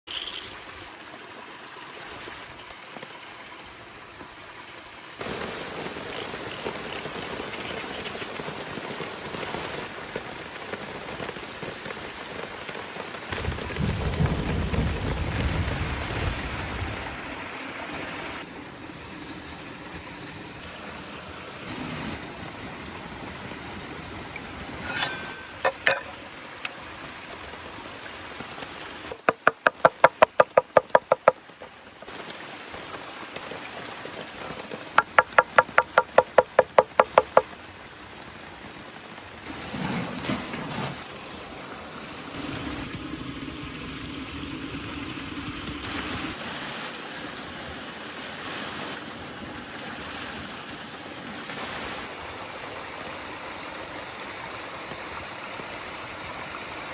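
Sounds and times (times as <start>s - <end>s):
quick even knocks: 29.2s - 31.4s, 35.0s - 37.4s.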